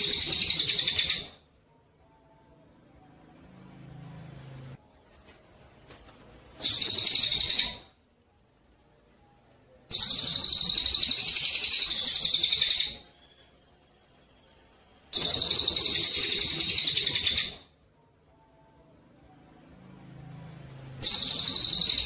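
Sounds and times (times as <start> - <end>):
songbird rattling trills: 0.0 - 1.4, 4.9 - 7.9, 9.9 - 14.5, 15.1 - 17.6, 21.0 - 22.0.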